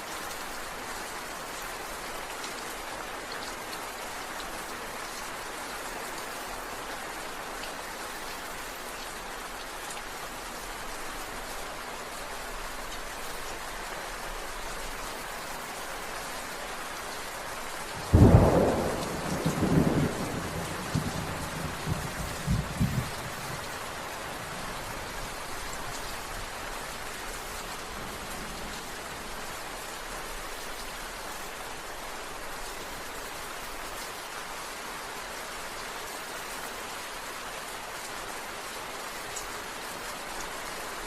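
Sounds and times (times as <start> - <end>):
steady rain falling: 0.0 - 41.0
thunderclap rumbling: 18.1 - 23.4.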